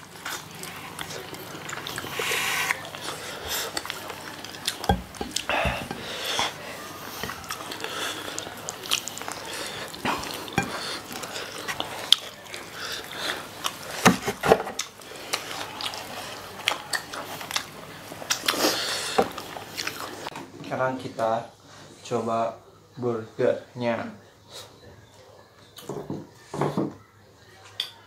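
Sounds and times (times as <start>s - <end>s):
people chewing chicken wings: 0.0s - 20.3s.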